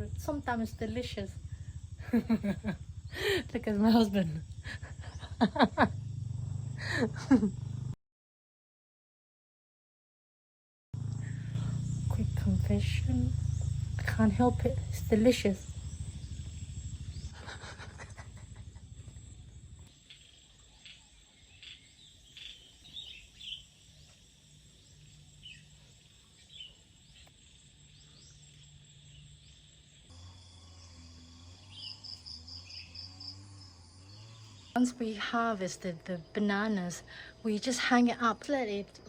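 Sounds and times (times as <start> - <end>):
insect noise: 0.0 - 8.0, 11.0 - 39.0
steady low hum: 0.0 - 8.0, 11.0 - 19.9
low rumble: 11.0 - 19.9.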